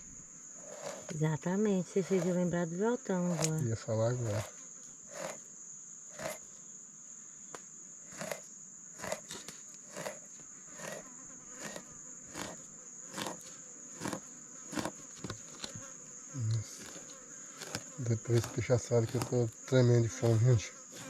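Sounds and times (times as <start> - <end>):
high-pitched insect drone: 0.0 - 21.0.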